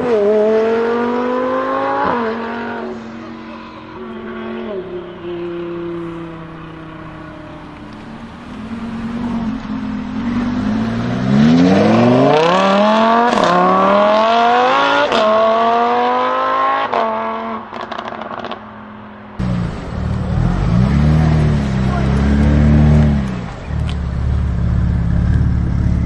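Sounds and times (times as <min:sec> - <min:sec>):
car engine accelerating: 0:00.0 - 0:18.6, 0:19.4 - 0:26.0
exhaust crackles and pops: 0:19.4 - 0:26.0.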